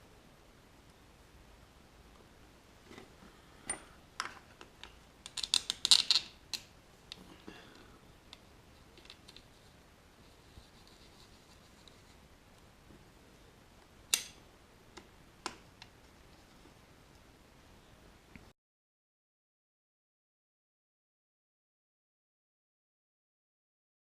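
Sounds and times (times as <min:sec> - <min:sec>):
metal parts clicking and tapping: 0:03.6 - 0:08.4.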